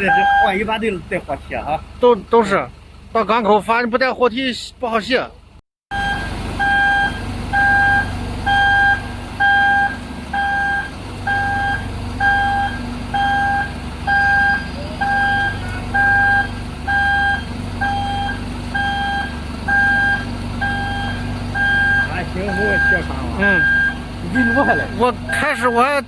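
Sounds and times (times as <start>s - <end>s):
reversing alarm beeping: 0.0s - 0.6s, 5.9s - 26.0s
diesel engine running: 0.0s - 26.0s.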